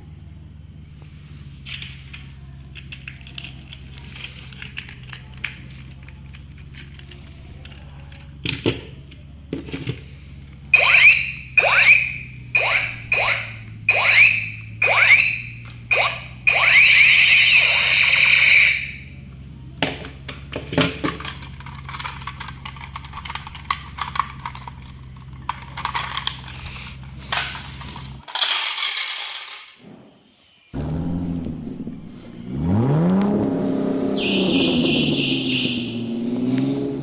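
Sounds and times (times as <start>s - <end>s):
steady low hum: 0.0s - 28.2s, 30.7s - 34.2s
plastic toys clicking and rattling: 1.6s - 10.6s, 19.8s - 29.8s
toy gun pew tones: 10.7s - 19.1s.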